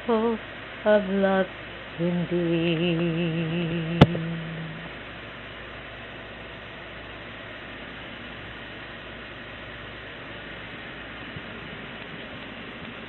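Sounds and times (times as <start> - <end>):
low hum: 0.0 - 13.0
recording hiss: 0.0 - 13.0.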